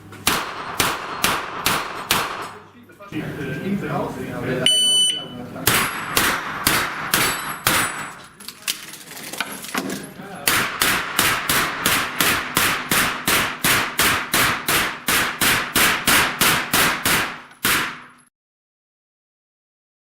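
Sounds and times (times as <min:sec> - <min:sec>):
rapid gunshots at steel plates: 0:00.2 - 0:02.6, 0:05.6 - 0:08.2, 0:10.5 - 0:18.3.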